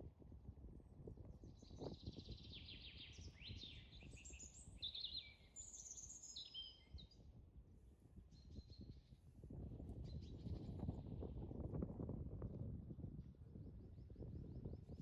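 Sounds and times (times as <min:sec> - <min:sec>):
small birds chirping and singing: 0:01.4 - 0:07.3, 0:08.3 - 0:09.2.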